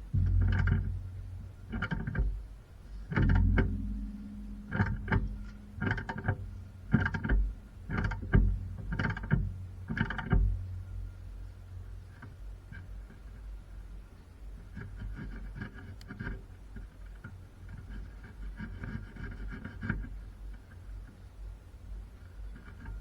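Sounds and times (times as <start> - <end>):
hammer striking metal: 0.0 - 11.2.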